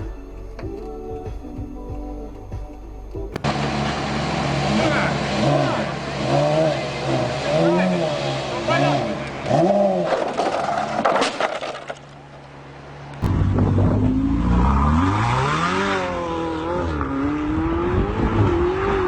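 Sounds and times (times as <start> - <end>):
car engine revving: 3.3 - 19.0
car crash cracks and knocks: 9.9 - 12.4.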